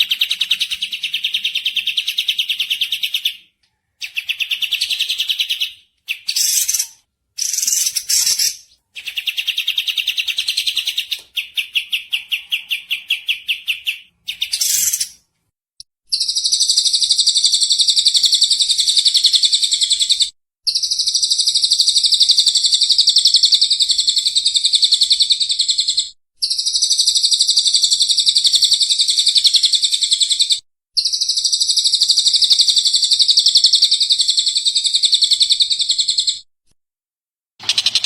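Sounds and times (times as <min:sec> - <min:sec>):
songbird trilling: 0:04.0 - 0:15.2.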